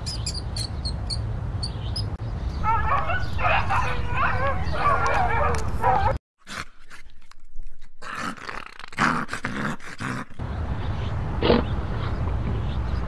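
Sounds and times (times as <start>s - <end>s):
animal calls: 2.6s - 6.2s.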